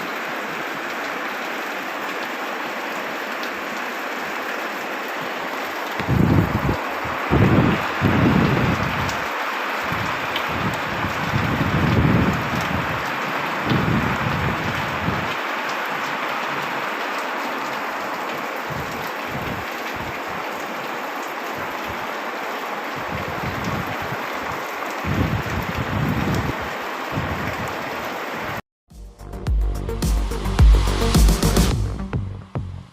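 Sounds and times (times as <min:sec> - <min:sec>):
heavy rain pouring: 0:00.0 - 0:28.6, 0:29.7 - 0:32.8
low thunder rumbles: 0:06.0 - 0:09.2, 0:09.9 - 0:12.9.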